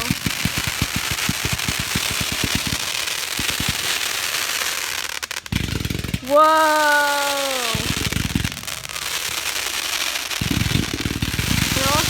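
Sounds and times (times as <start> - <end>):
crackling hiss: 0.0 - 12.0
fireworks crackling pops: 0.0 - 12.0
low rumble: 10.4 - 12.0.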